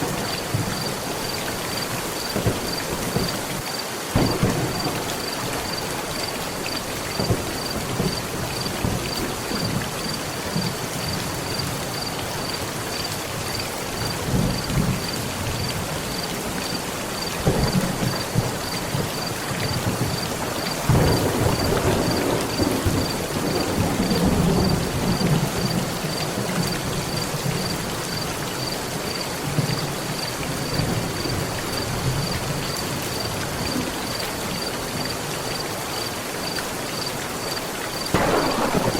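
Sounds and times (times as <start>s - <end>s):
thunder rumbling: 0.0s - 11.6s, 17.4s - 27.8s, 38.1s - 38.9s
heavy rain on a metal roof: 0.0s - 38.9s.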